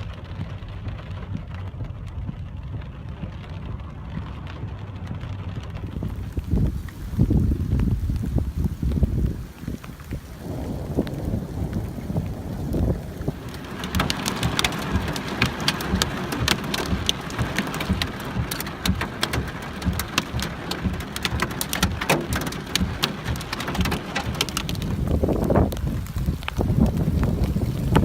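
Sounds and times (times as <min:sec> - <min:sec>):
rain falling: 0:00.0 - 0:28.0
wind rumble on microphone: 0:00.0 - 0:28.0.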